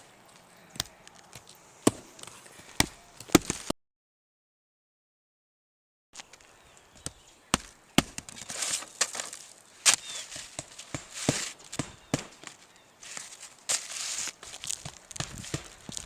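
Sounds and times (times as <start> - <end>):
shingles scraping and rustling: 8.0 - 16.0
nail strikes: 10.9 - 12.5.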